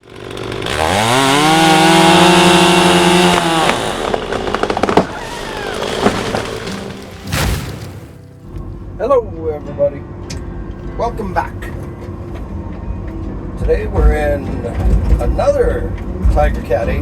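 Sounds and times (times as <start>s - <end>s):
hydraulic chain saw whine: 0.0s - 7.3s
sharp cracks and clicks: 3.0s - 7.9s.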